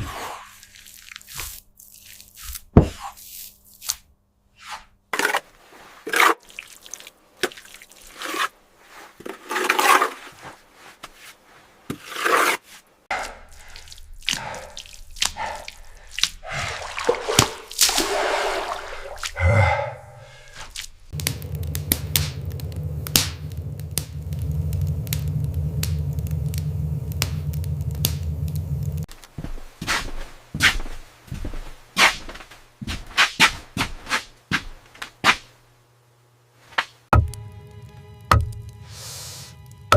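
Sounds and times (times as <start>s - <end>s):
water dripping: 6.4s - 8.2s, 13.1s - 19.4s, 20.2s - 29.1s, 37.2s - 38.9s.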